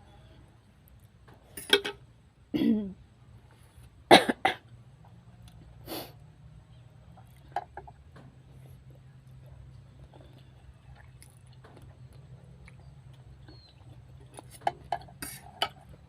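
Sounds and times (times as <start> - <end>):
person coughing: 2.6 - 3.0, 4.1 - 4.6.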